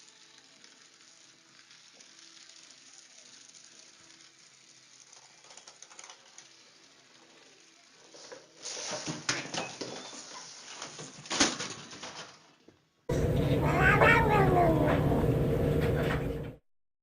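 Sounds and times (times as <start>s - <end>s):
clicks and rustling: 8.7s - 12.8s
steady low hum: 13.1s - 16.6s
cat meowing: 13.4s - 15.3s.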